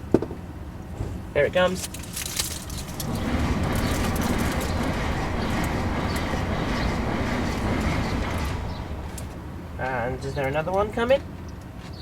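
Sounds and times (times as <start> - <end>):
train wheels on rail: 2.3 - 10.0.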